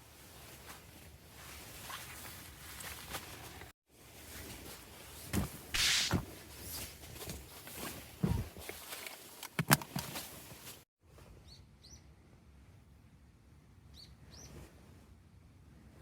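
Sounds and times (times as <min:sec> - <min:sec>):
rustling: 0:00.0 - 0:10.8.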